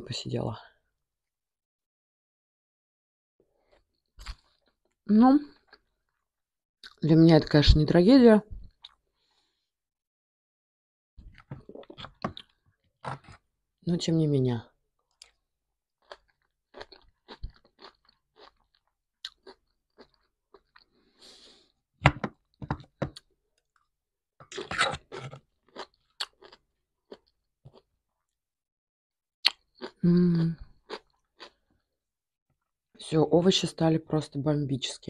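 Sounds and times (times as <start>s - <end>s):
chewing raw vegetables: 11.2s - 13.4s, 16.0s - 21.0s, 22.9s - 27.9s, 29.4s - 31.7s.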